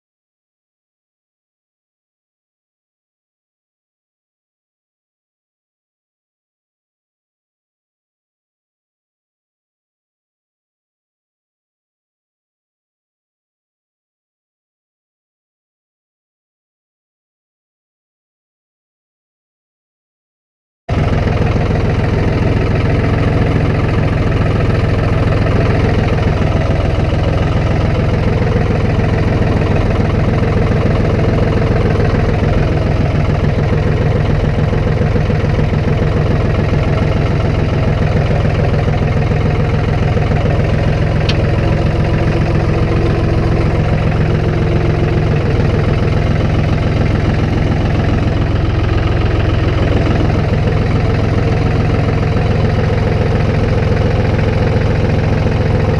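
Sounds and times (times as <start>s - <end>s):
vehicle engine running steadily: 20.9s - 55.9s.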